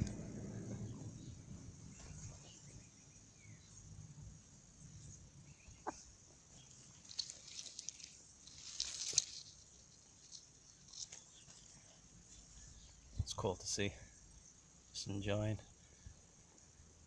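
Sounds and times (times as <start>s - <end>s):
scratching and rustling in dirt: 4.9s - 13.4s.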